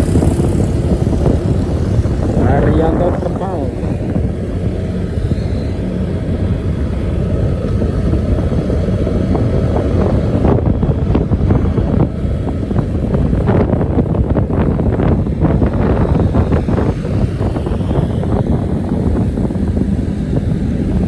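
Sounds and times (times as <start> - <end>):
old bus engine running: 0.0 - 21.0.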